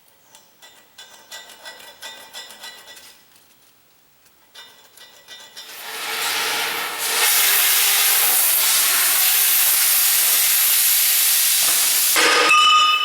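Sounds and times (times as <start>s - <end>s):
rushing air hiss: 5.7s - 12.2s
brief metallic ring: 12.2s - 13.0s.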